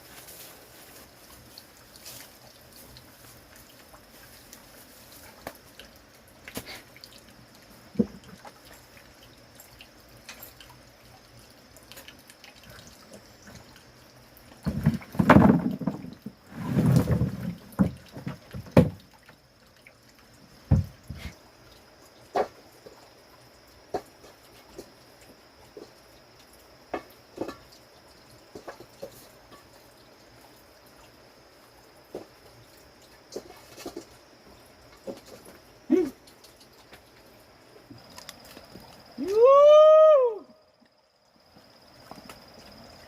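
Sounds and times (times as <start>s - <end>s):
water dripping and splashing: 0.0s - 39.5s.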